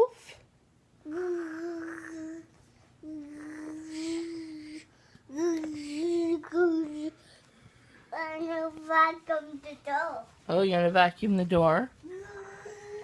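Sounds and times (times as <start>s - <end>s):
child imitating vacuum cleaner: 1.0s - 7.2s, 12.1s - 13.0s.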